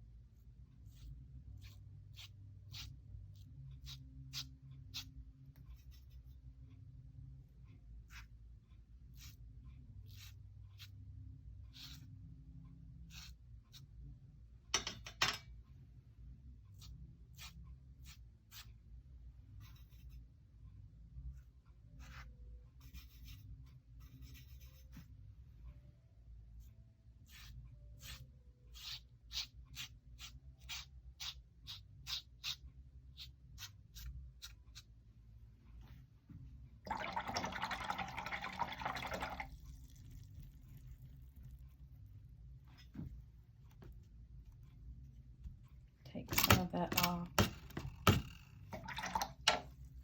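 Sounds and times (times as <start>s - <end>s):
dry paintbrush scratching paper: 0.4s - 6.5s, 9.0s - 11.0s, 11.6s - 12.2s, 13.1s - 13.9s, 16.8s - 18.8s, 19.5s - 20.3s, 22.0s - 25.2s, 26.6s - 34.9s.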